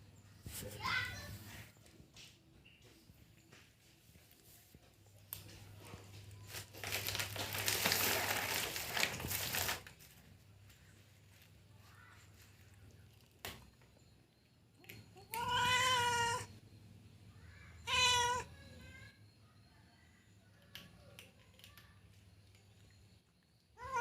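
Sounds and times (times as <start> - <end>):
cat meowing: 15.2 - 16.5, 17.8 - 18.5.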